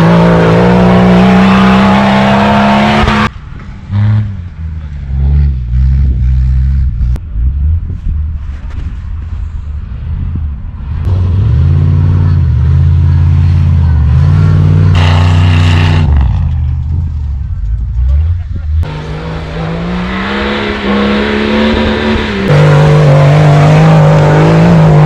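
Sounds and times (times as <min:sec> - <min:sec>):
off-road vehicle engine revving: 0:00.0 - 0:03.3, 0:11.1 - 0:25.0.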